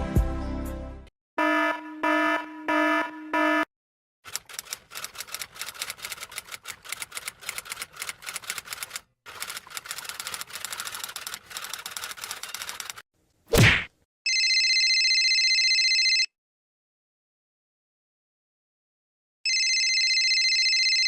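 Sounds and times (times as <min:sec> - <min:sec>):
rapid typing-like clicking: 0:04.3 - 0:13.0.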